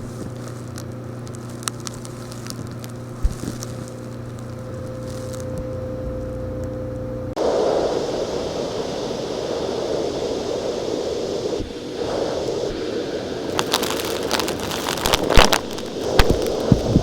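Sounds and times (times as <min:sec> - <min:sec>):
rocks rattling in vacuum: 0:00.0 - 0:05.8, 0:13.4 - 0:17.0
vacuum cleaner running: 0:00.0 - 0:17.0.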